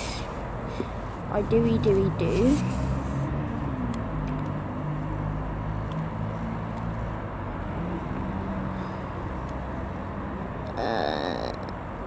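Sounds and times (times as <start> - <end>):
diesel train engine drone: 0.0 - 10.8.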